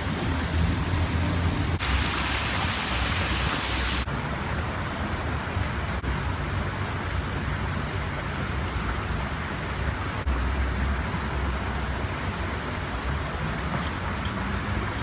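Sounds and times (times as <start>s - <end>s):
waterfall rushing: 0.0s - 4.1s.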